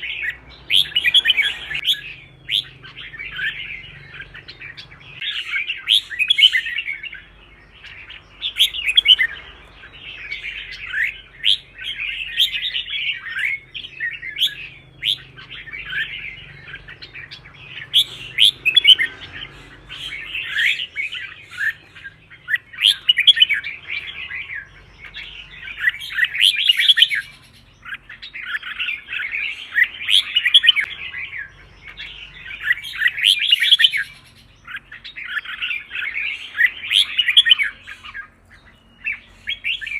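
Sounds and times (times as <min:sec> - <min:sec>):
bird singing warbled phrases: 0:00.0 - 0:39.9.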